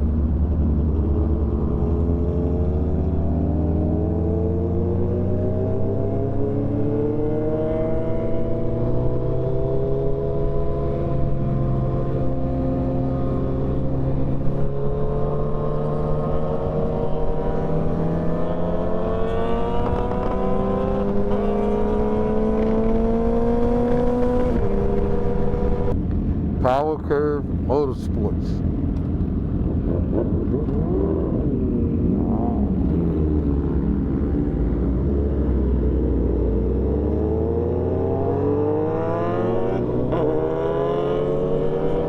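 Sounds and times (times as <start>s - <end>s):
motorcycle engine running: 11.3s - 26.5s.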